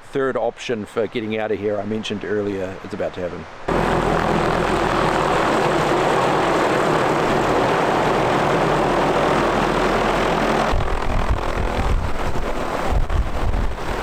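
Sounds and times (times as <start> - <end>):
aircraft engine droning: 3.7 - 14.0
wind buffeting microphone: 3.7 - 14.0.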